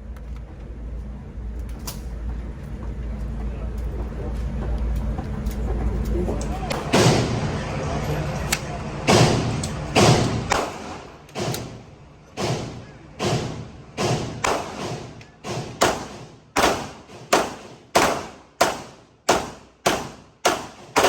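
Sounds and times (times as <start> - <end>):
gunshots with short echo: 6.7 - 7.6, 9.1 - 21.0.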